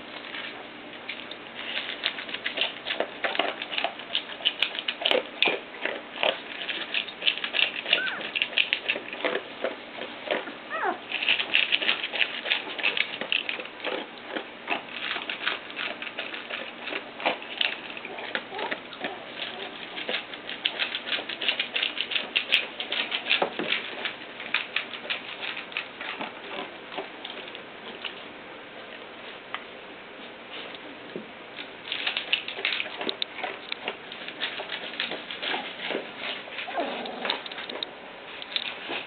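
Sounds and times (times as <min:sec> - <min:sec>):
puppies clicking and pattering: 0:00.0 - 0:39.0
puppy squeak: 0:07.9 - 0:08.3, 0:10.7 - 0:11.0.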